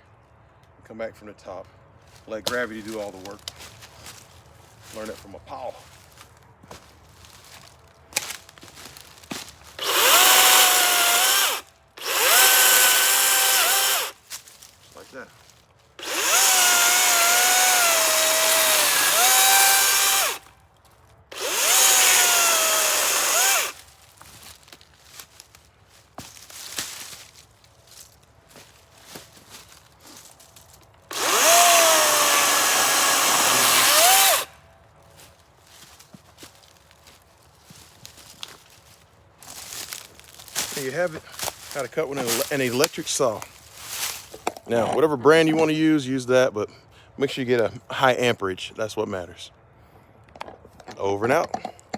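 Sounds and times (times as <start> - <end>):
electric chainsaw whining: 9.8 - 14.2, 16.0 - 20.5, 21.3 - 23.8, 31.1 - 34.6.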